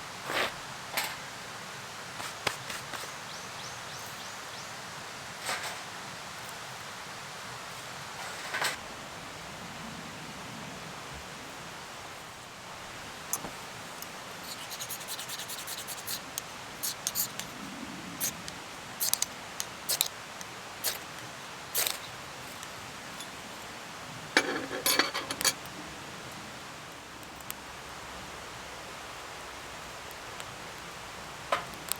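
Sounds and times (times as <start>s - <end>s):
steady background hiss: 0.0s - 31.9s
handling clicks and scrapes: 13.2s - 17.6s, 18.2s - 20.1s, 21.8s - 23.4s, 24.4s - 25.6s.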